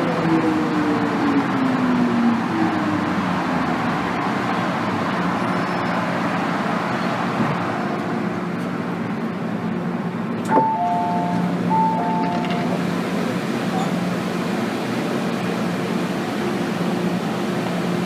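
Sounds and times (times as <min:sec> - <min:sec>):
train carriage rumble and hiss: 0:00.0 - 0:18.0
two-tone electronic chime: 0:10.6 - 0:12.7.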